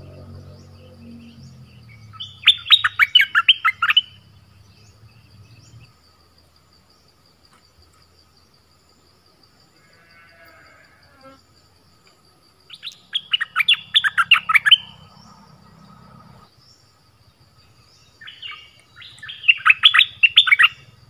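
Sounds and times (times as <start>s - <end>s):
faint high bird chirps: 0.0s - 5.9s, 12.7s - 16.0s, 17.6s - 21.0s.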